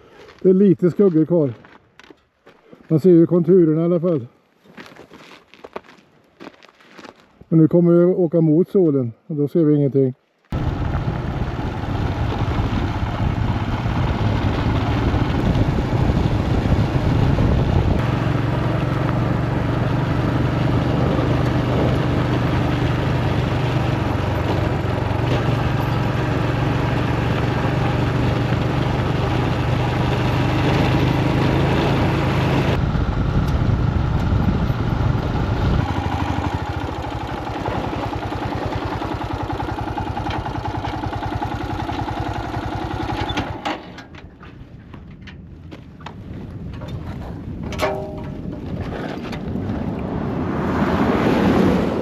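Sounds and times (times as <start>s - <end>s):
wind noise: 10.5s - 18.3s, 19.1s - 24.8s, 30.0s - 36.9s, 44.2s - 52.0s
road noise: 10.5s - 52.0s
motorcycle engine running: 10.6s - 43.6s.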